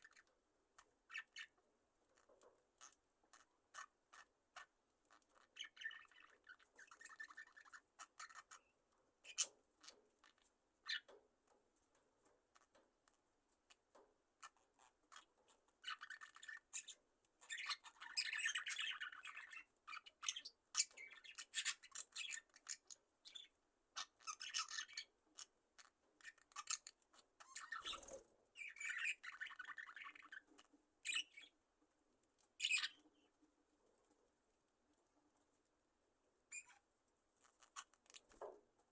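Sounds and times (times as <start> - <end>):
budgerigars chirping: 1.0 - 1.6, 2.8 - 11.1, 14.4 - 31.6, 32.6 - 33.1, 36.5 - 36.8.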